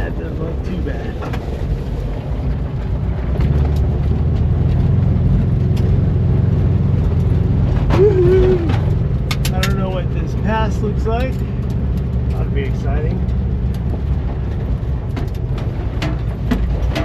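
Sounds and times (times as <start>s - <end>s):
van engine pulling under load: 0.0s - 17.0s.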